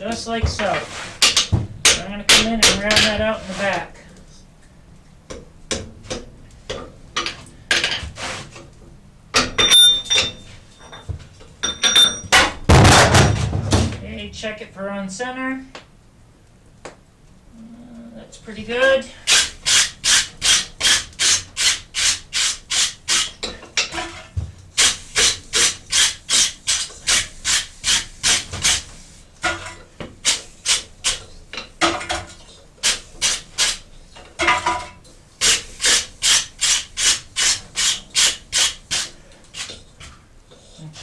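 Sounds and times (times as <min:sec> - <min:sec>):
anvil ringing: 0:09.4 - 0:11.0, 0:11.6 - 0:12.4.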